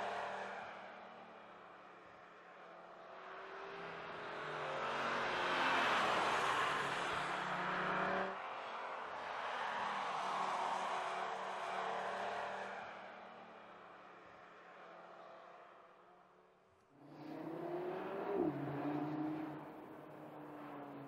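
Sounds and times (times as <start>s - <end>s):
car engine accelerating: 17.0s - 21.0s.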